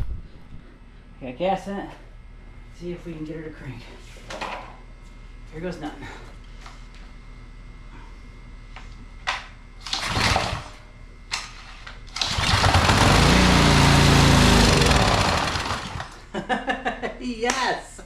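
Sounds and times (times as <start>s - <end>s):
recoil cord pull-start: 9.8s - 10.8s, 12.1s - 16.2s
small gasoline engine running: 9.8s - 10.8s, 12.2s - 16.2s.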